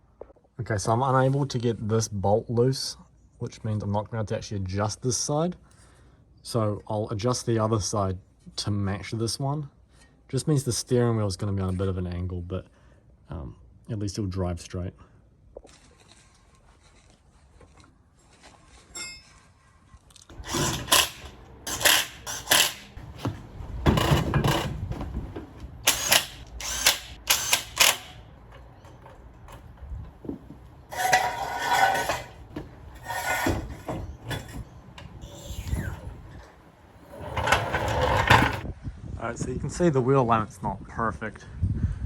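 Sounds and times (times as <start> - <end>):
tools clicking and rattling on metal: 20.3 - 35.4.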